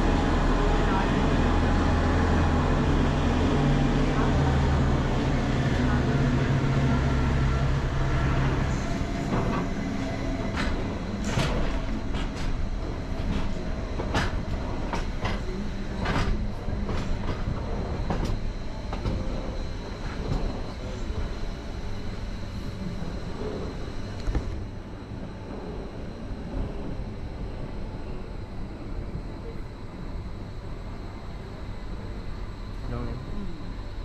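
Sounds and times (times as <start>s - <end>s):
low motor hum: 0.0s - 34.0s
train rumble: 0.0s - 34.0s.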